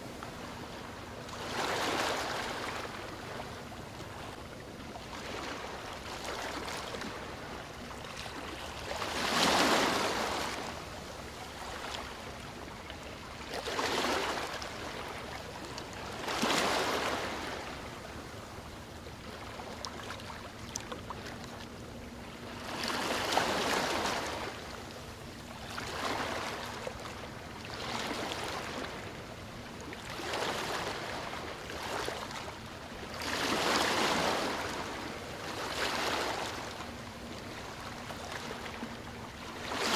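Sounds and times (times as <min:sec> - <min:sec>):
sea waves breaking: 0:00.0 - 0:18.3, 0:19.2 - 0:39.9.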